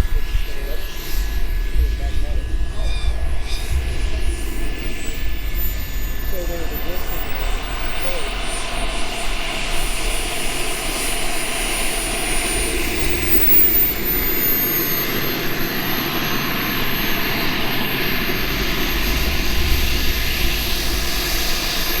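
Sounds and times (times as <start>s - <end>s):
high steady whine: 0.0s - 22.0s
jet engine rush with whine: 0.0s - 22.0s.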